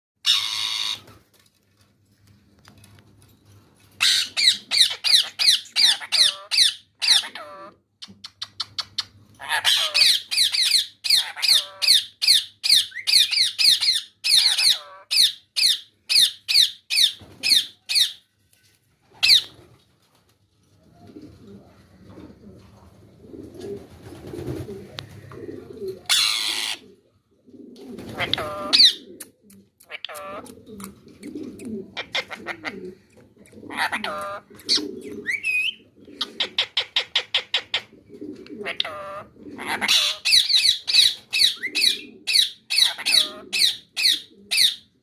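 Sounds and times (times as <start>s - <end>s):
parrot screeching: 0.2s - 1.1s, 4.0s - 7.7s, 9.4s - 18.2s, 26.1s - 26.8s, 28.2s - 29.0s, 29.9s - 30.5s, 32.0s - 32.7s, 33.7s - 35.8s, 38.6s - 44.8s.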